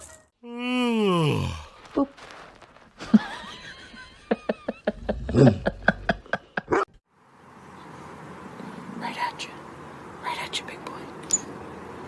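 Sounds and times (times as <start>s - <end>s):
person laughing in rapid bursts: 3.0s - 6.8s.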